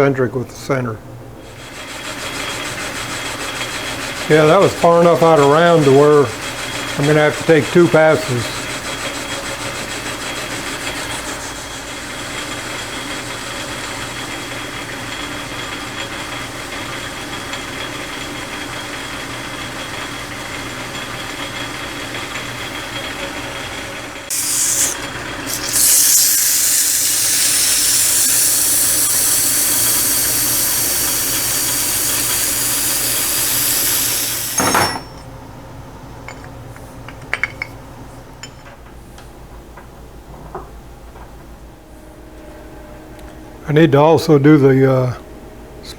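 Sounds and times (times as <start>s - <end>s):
metal lathe running: 1.7s - 13.2s, 20.3s - 35.1s
loud hiss: 24.3s - 34.8s.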